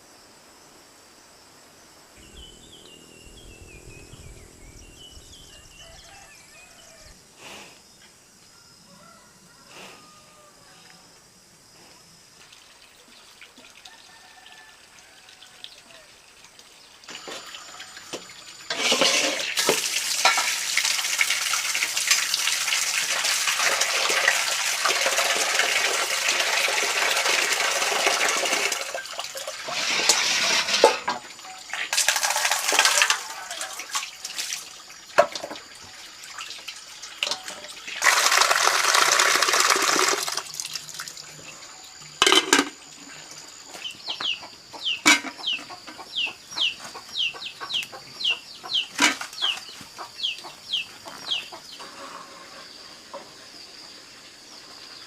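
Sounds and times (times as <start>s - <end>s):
water running: 15.0s - 31.1s, 31.7s - 43.4s.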